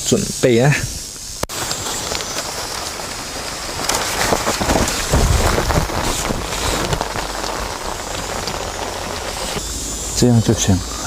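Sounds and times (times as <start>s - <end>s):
heavy rain spattering: 1.4s - 10.3s.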